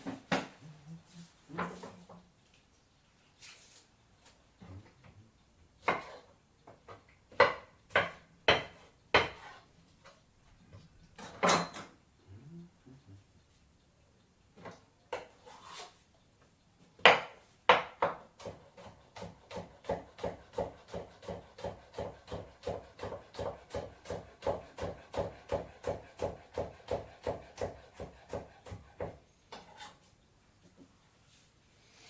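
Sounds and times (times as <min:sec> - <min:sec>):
knife chopping on cutting board: 0:05.8 - 0:06.2, 0:07.4 - 0:09.6, 0:17.0 - 0:29.2.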